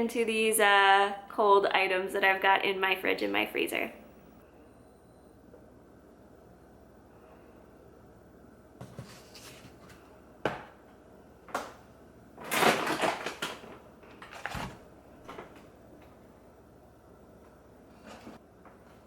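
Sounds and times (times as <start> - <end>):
packaging crinkling: 12.4 - 14.8.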